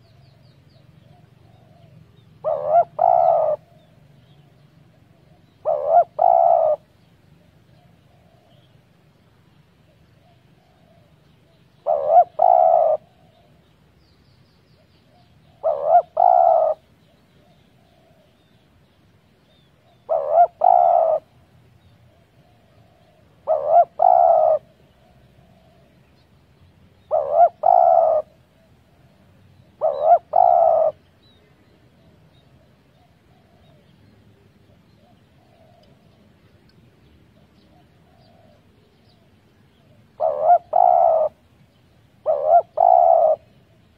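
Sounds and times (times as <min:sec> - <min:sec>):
dove cooing: 0:01.0 - 0:08.8, 0:09.9 - 0:13.6, 0:15.1 - 0:18.5, 0:19.8 - 0:21.4, 0:22.1 - 0:26.0, 0:27.0 - 0:34.0, 0:34.7 - 0:36.3, 0:37.4 - 0:41.4, 0:42.2 - 0:43.9.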